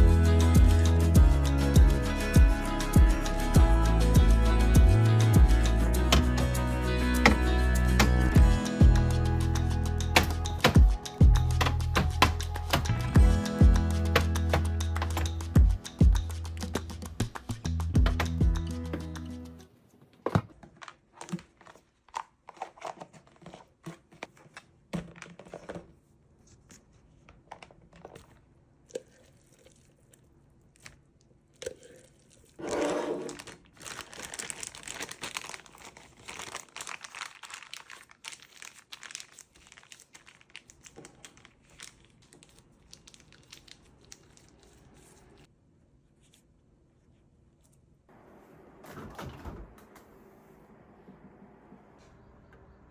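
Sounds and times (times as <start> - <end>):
plastic packaging crinkling: 20.7 - 25.8, 31.8 - 45.5.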